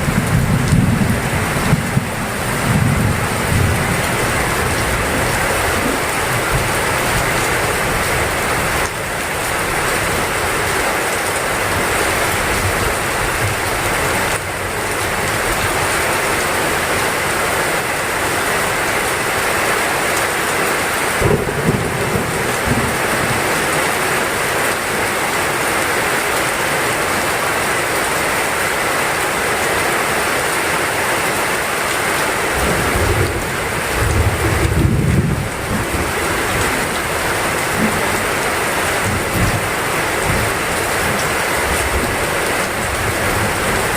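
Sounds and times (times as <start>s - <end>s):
low rumbles of thunder: 0.0s - 6.8s, 21.2s - 23.5s, 32.7s - 37.0s
heavy rain falling: 0.0s - 43.9s.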